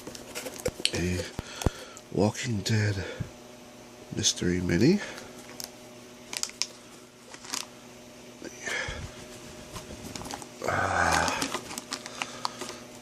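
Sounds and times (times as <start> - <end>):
packaging clicks and crinkles: 6.3 - 7.7, 10.1 - 12.8
packaging rustle: 6.3 - 7.7, 9.1 - 12.8.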